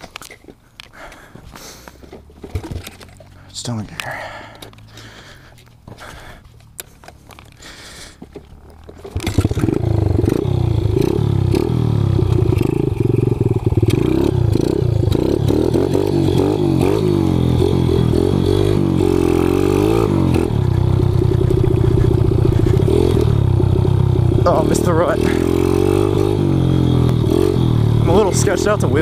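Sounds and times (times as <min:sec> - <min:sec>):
motorbike engine revving: 0:08.5 - 0:29.0.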